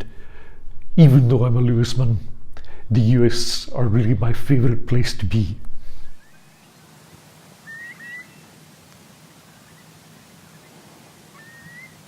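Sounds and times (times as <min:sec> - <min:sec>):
faint background noise: 0:00.0 - 0:12.0
bird calling: 0:06.2 - 0:12.0.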